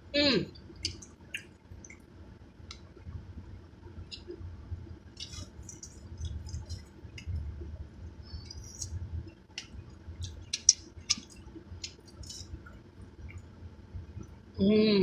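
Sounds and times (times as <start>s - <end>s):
low steady rumble: 0.0s - 15.0s
person chewing with lip smacks: 0.8s - 2.0s, 5.2s - 7.4s, 9.6s - 13.4s.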